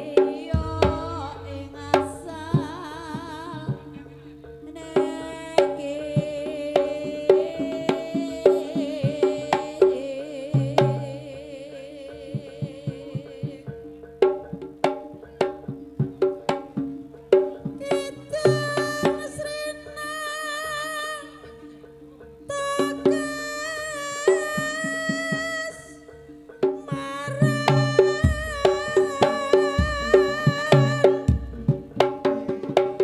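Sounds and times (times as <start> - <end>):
hand drum strokes: 0.0 - 33.0
reedy melody: 0.0 - 33.0
held ringing tones: 17.8 - 33.0.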